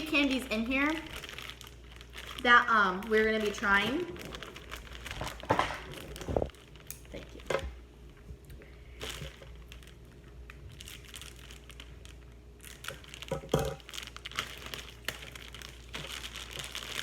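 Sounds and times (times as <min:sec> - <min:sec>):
plastic wrappers crinkling: 0:00.0 - 0:17.0.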